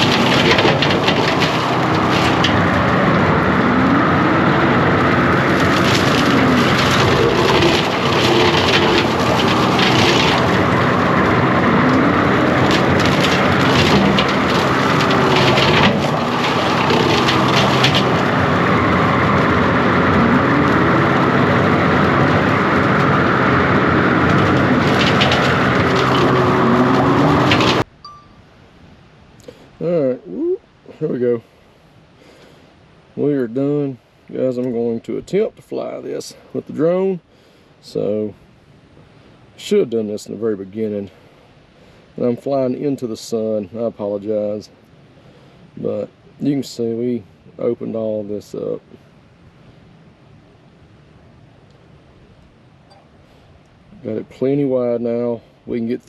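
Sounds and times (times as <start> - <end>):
brush and limbs cracking: 0.0 - 27.9
diesel engine running hard: 0.0 - 27.9.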